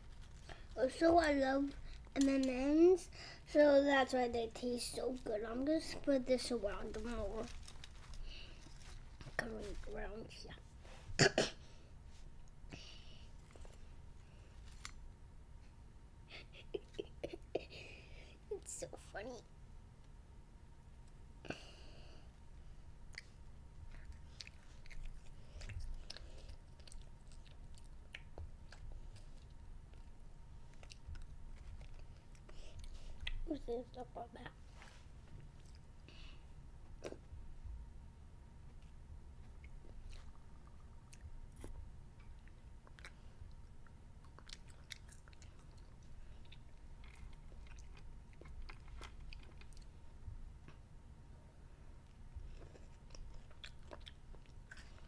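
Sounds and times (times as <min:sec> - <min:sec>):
child chewing candy: 0:00.0 - 0:02.6, 0:05.1 - 0:10.0, 0:12.4 - 0:15.2, 0:23.0 - 0:33.6, 0:35.3 - 0:37.4, 0:38.7 - 0:50.8, 0:52.0 - 0:55.0.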